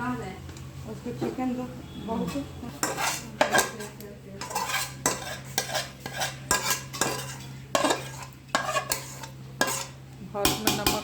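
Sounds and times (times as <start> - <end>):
metal spoon scraping metal dishes: 2.2 - 11.0.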